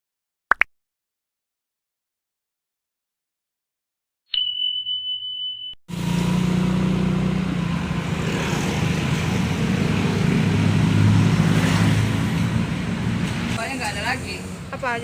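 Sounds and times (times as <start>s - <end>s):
street noise: 5.9s - 15.0s.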